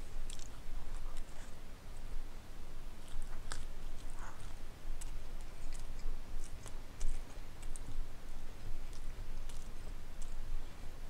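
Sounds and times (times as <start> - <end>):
low steady hum: 0.0 - 11.0
wet mouth clicks chewing: 0.1 - 1.6, 3.0 - 8.0, 8.8 - 10.4.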